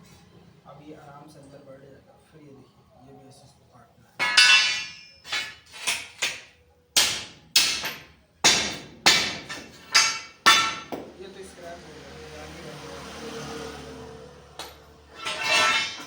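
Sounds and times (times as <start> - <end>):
hammer striking steel: 4.2 - 11.2, 14.6 - 16.0.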